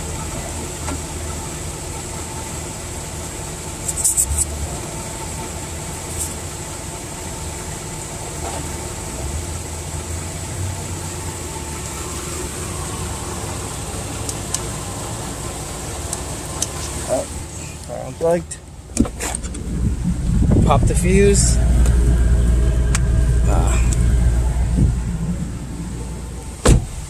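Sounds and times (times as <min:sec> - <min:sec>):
tire inflator running: 0:19.0 - 0:26.5.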